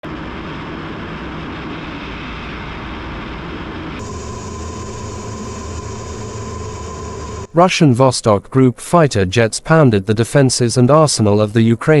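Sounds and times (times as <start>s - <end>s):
jet aircraft in flight: 0.0s - 7.5s
steady high tone: 4.0s - 7.9s.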